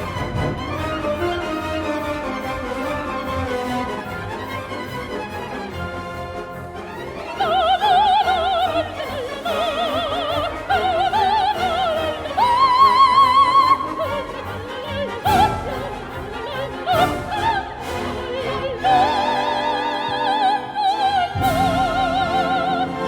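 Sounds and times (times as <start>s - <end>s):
orchestra: 0.0s - 23.0s
soprano singing opera: 7.3s - 23.0s.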